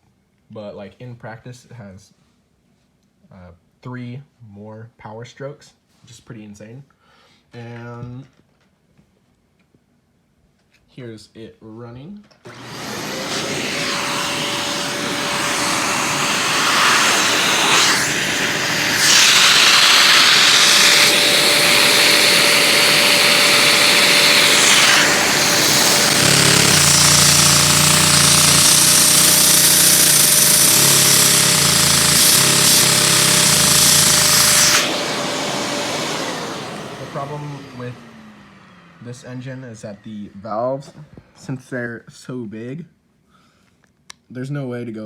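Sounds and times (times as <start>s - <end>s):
toy vacuum engine running: 12.5s - 39.4s
vacuum cleaner whine: 12.5s - 41.2s.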